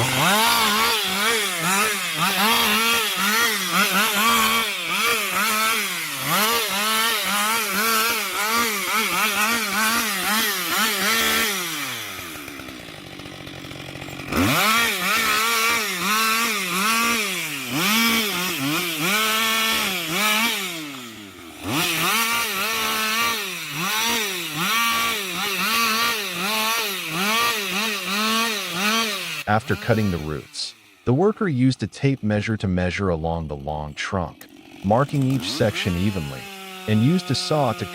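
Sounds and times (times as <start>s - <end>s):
chainsaw cutting roots: 0.0s - 37.9s.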